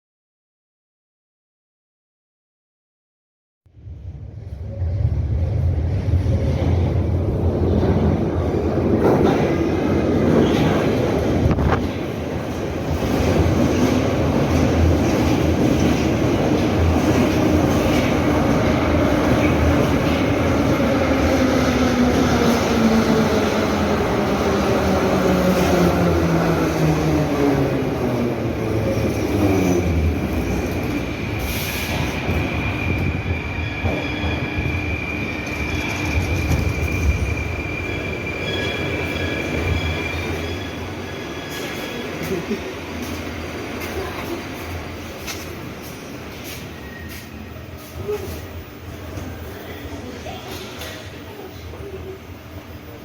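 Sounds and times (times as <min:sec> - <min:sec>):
high wheel squeal: 0:31.4 - 0:42.2.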